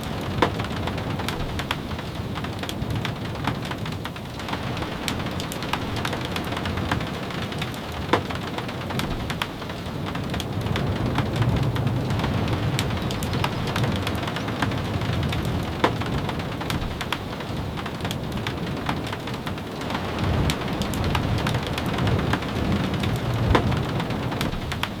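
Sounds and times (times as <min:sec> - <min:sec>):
steady rain: 0:00.0 - 0:25.0.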